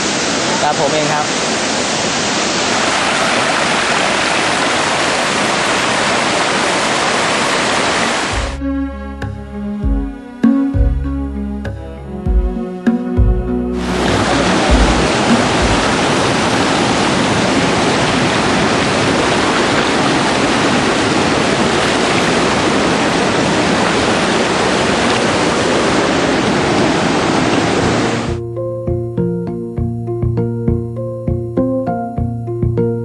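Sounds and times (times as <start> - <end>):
waterfall rushing: 0.0 - 8.6, 13.8 - 28.4
background music: 8.3 - 16.0, 28.3 - 33.0.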